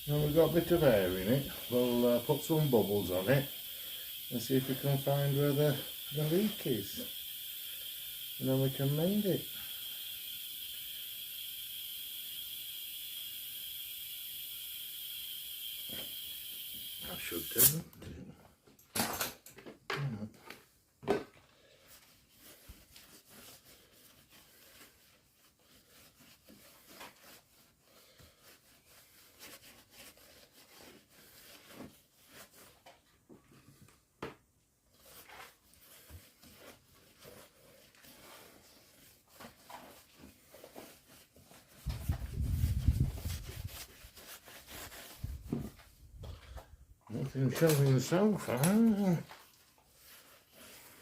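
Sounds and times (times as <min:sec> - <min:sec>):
rubbing rubber inner tube: 0:34.9 - 0:45.8.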